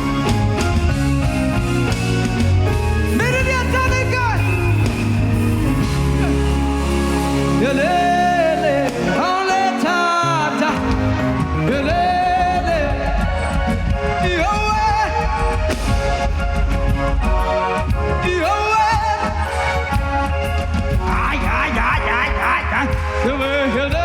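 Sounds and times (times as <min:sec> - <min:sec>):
gospel band playing: 0:00.0 - 0:24.0
person singing: 0:05.6 - 0:15.7.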